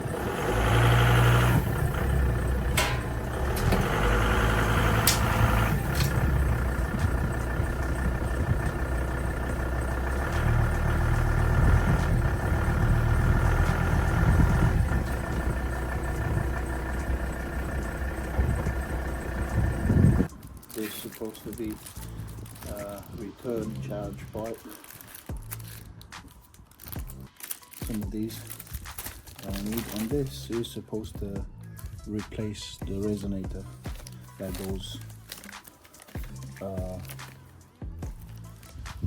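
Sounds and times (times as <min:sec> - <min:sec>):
car engine idling: 0:00.0 - 0:20.3
sharp clicks: 0:01.2 - 0:12.4.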